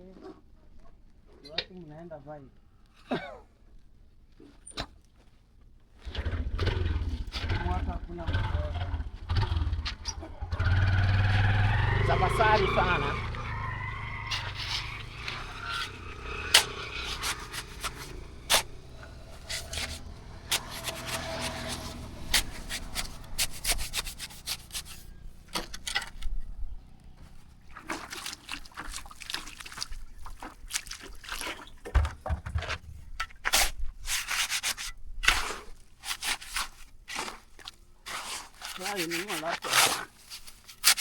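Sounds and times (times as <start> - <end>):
scraping on hard surface: 12.5 - 25.2, 33.4 - 37.5, 38.1 - 41.0.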